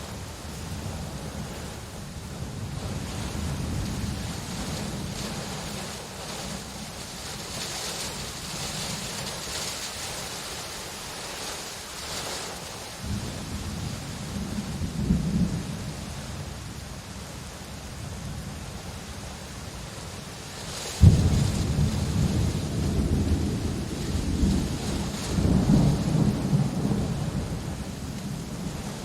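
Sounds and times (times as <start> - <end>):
low rolling thunder: 0.0 - 10.6, 13.0 - 16.8, 20.9 - 29.0
rain falling: 0.0 - 29.0.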